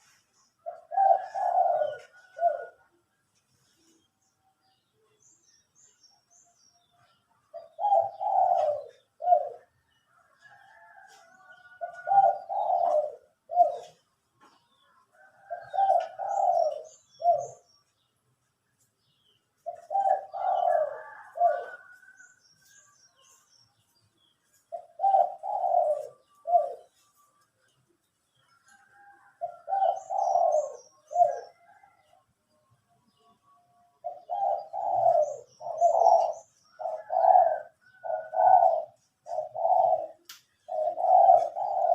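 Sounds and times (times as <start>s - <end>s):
dove cooing: 0.0s - 3.0s, 7.5s - 14.1s, 15.1s - 17.7s, 19.6s - 22.3s, 24.6s - 27.2s, 28.6s - 32.1s, 34.0s - 41.9s
small birds chirping: 0.0s - 41.9s.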